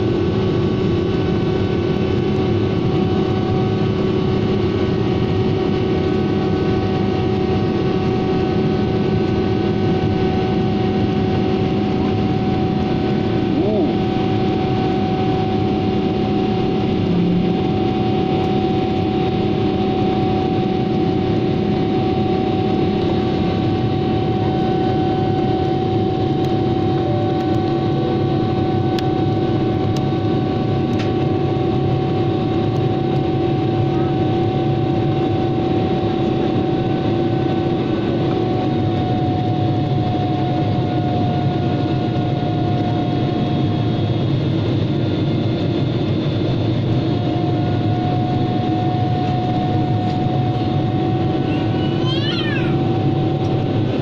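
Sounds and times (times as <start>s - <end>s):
jet engines and rushing air: 0.0s - 54.0s
steady hum tones: 7.5s - 21.8s.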